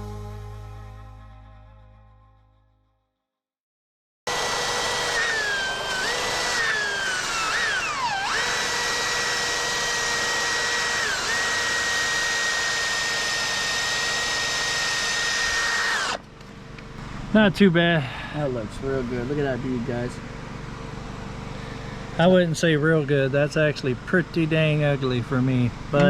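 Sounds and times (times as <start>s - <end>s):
angle grinder on steel: 4.3s - 16.2s.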